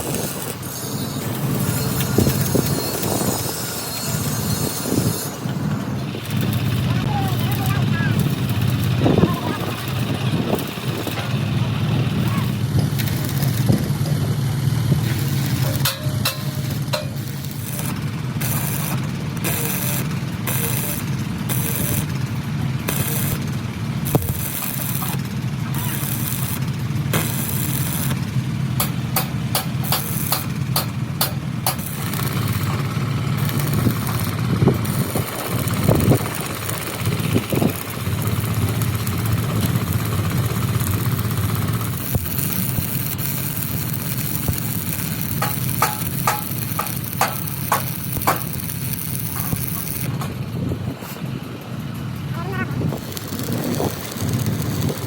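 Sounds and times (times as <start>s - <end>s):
high-pitched tool tone: 0.0s - 10.0s, 15.0s - 22.2s, 22.8s - 23.5s, 24.1s - 36.2s, 41.3s - 50.2s
engine running steadily: 0.0s - 55.0s
sharp clicks and knocks: 15.0s - 22.2s, 28.8s - 36.9s, 37.7s - 50.5s.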